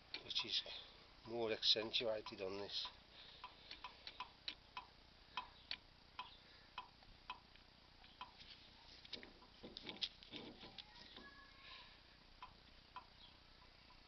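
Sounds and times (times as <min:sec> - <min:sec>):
soft dull knocks: 0:09.1 - 0:11.4.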